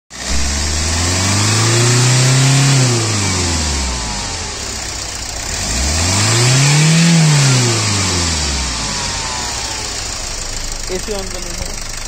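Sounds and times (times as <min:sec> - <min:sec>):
diesel engine revving: 0:00.1 - 0:12.0.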